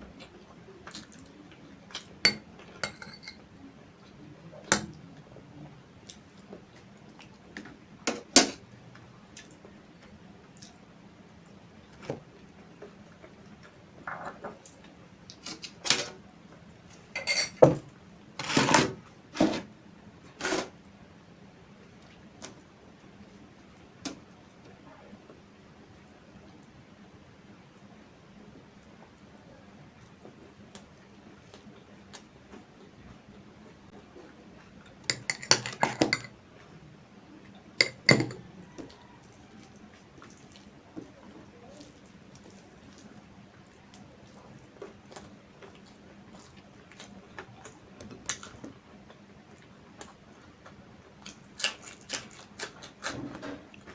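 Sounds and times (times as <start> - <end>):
dishes clinking: 2.0 - 3.4, 17.2 - 17.8, 35.1 - 36.4, 37.8 - 38.6
person chewing food: 37.8 - 48.7, 49.5 - 53.1.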